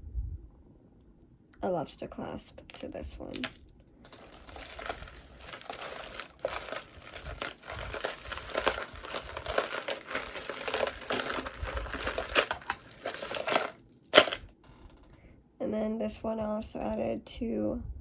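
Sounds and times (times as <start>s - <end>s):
jewelry clinking: 3.3s - 14.5s
crinkling rustle: 3.4s - 14.4s.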